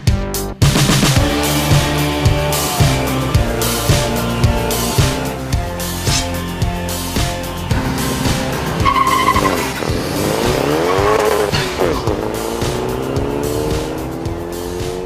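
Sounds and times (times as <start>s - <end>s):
backing music with beat: 0.0s - 15.0s
car engines revving: 1.0s - 15.0s
tire squeal: 1.4s - 13.0s.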